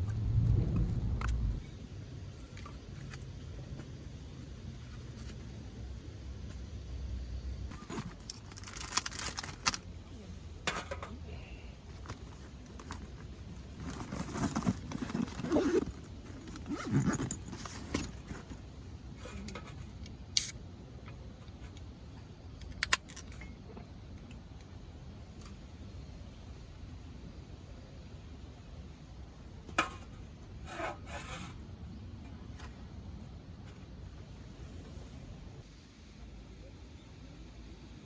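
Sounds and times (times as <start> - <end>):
rustling and scraping: 11.9 - 20.0.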